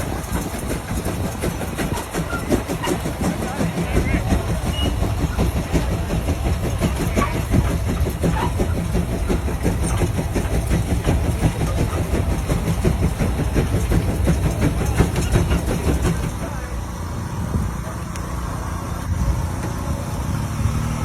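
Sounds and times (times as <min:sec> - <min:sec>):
tractor engine rumbling: 0:00.0 - 0:21.0.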